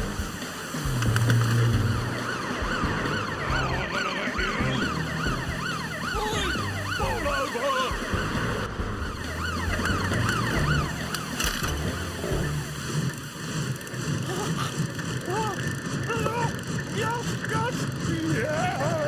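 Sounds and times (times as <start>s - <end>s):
background music: 0.0s - 13.9s
siren wailing: 0.0s - 14.6s, 15.2s - 19.0s.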